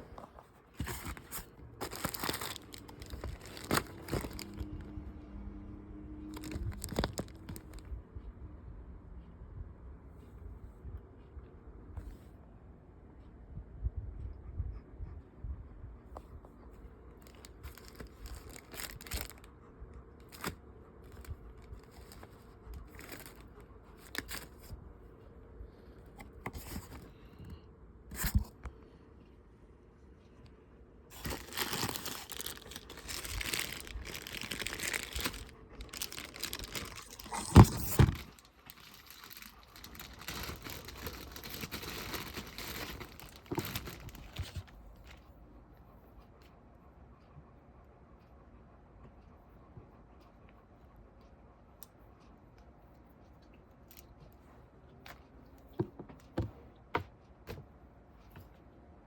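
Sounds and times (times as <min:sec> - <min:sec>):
packaging tearing and crinkling: 0:00.8 - 0:04.9, 0:06.3 - 0:07.8, 0:17.2 - 0:19.4, 0:31.1 - 0:44.7.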